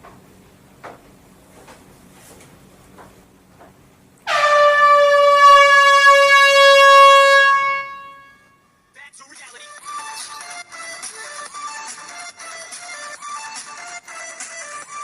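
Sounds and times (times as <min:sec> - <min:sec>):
long high horn blast: 0:04.2 - 0:08.8
music: 0:09.2 - 0:15.0.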